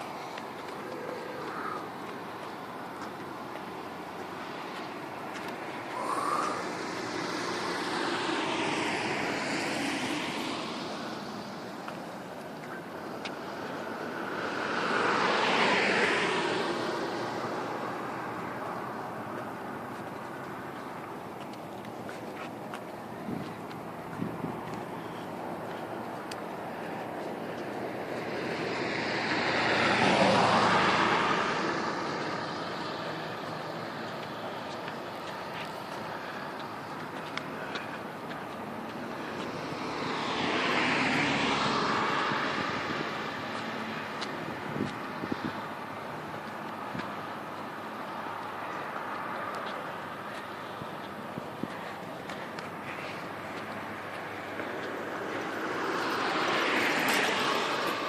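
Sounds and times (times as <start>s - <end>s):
outdoor background noise: 0.0s - 58.0s
passing vehicle engine and road noise: 0.0s - 58.0s.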